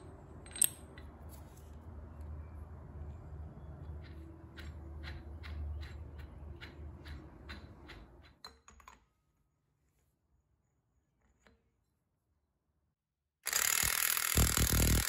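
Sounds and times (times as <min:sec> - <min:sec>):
ratchet wrench clicking: 0:13.5 - 0:15.0.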